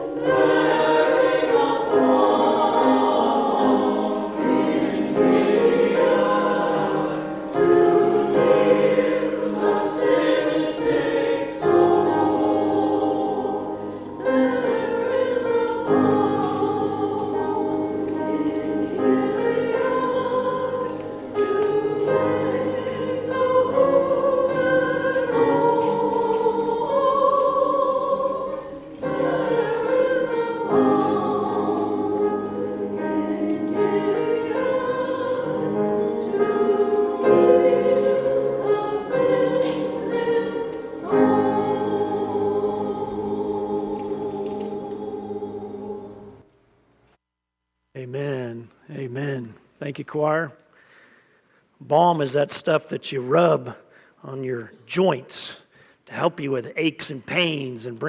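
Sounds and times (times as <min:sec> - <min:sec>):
church choir singing: 0:00.0 - 0:46.6.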